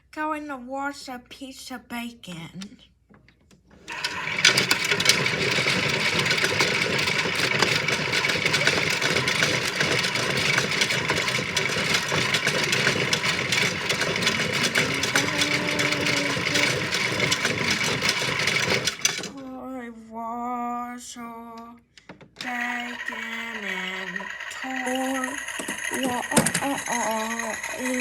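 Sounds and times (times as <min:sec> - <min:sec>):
plastic clicking rattle: 0:03.2 - 0:19.4, 0:21.9 - 0:28.0
toy motor whining: 0:03.9 - 0:19.4, 0:22.4 - 0:28.0.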